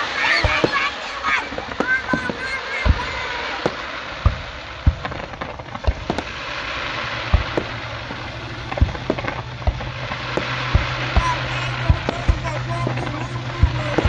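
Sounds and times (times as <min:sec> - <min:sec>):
background hiss: 0:00.0 - 0:14.0
fireworks bangs: 0:00.0 - 0:14.0.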